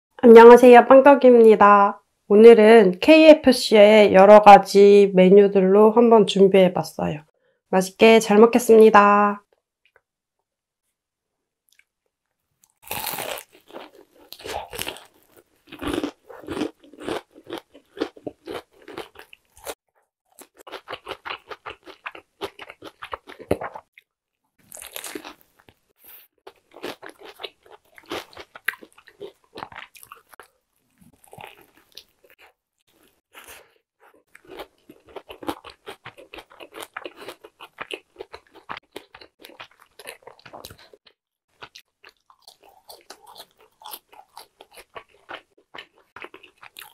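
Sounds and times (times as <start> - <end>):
crunchy chewing: 12.6 - 46.9.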